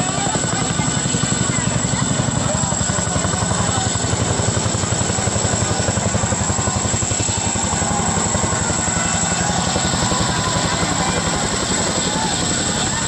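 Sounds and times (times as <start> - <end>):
helicopter rotor chop: 0.0 - 13.0.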